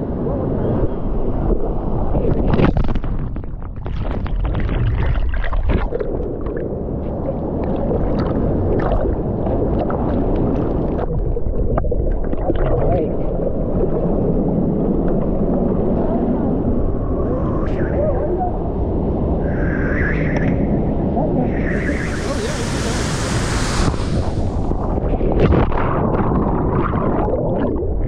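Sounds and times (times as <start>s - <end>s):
water splashing: 21.6s - 25.7s
waterfall rushing: 21.7s - 25.1s.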